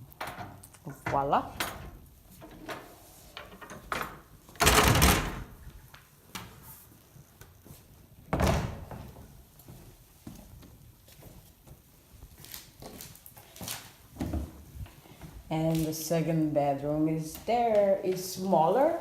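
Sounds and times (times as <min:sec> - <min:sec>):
wardrobe doors closing: 0:00.2 - 0:05.6.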